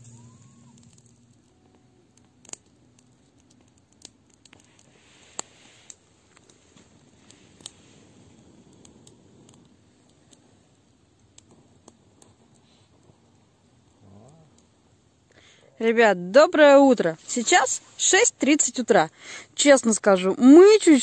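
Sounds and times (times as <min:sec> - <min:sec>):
sharp pops of fire: 0:00.0 - 0:15.6
campfire crackling: 0:00.0 - 0:21.0.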